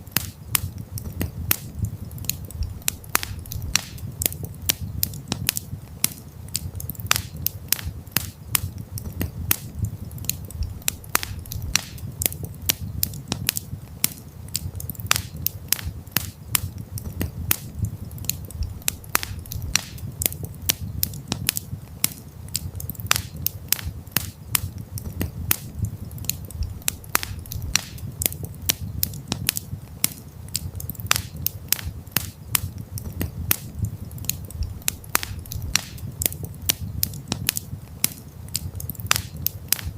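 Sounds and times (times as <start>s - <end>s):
campfire crackling and popping: 0.0s - 39.9s
low rumble of burning fire: 0.0s - 39.9s.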